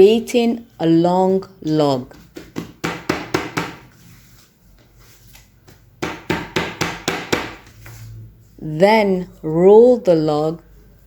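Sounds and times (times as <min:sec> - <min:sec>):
hands patting dough: 0:02.1 - 0:08.0.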